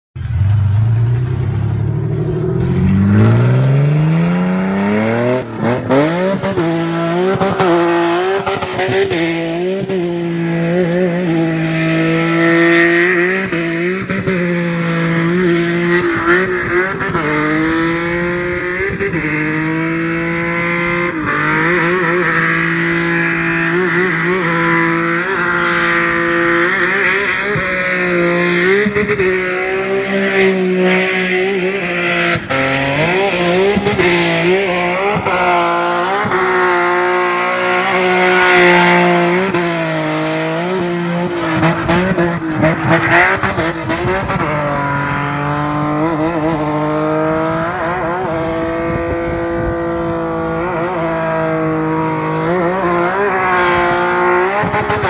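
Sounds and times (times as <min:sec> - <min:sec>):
car engine revving: 0:00.1 - 0:55.0.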